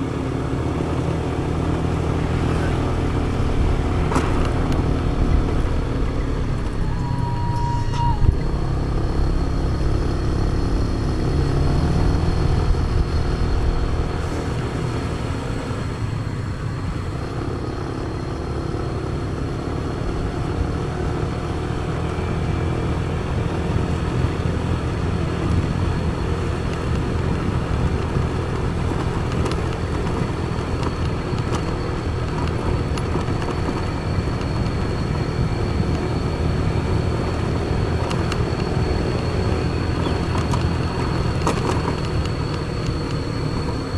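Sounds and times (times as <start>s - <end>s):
vehicle engine and road rumble: 0.0s - 43.9s
thin high whine: 6.8s - 9.5s.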